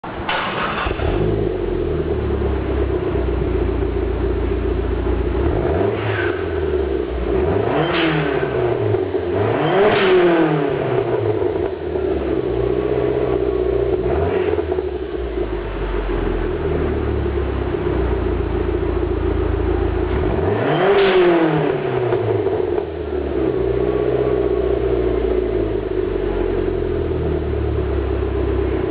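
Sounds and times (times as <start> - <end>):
car engine idling and revving: 0.1 - 28.9.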